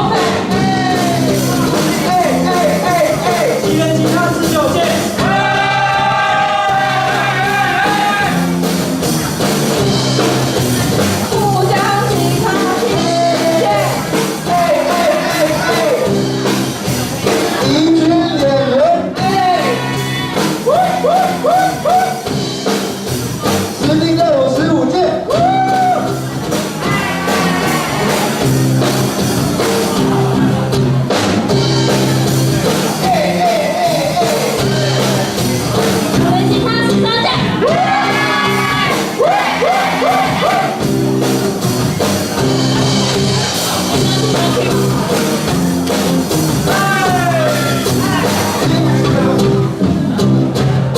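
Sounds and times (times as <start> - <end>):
person singing: 0.0 - 8.5, 11.3 - 16.2, 32.6 - 36.4
instrumental backing: 0.0 - 50.9.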